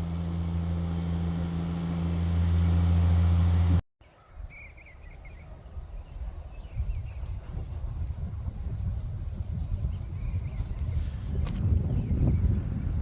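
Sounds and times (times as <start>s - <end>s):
low engine hum: 0.0s - 3.8s
bird chirping: 4.0s - 7.4s
wind rumbling on microphone: 4.2s - 13.0s.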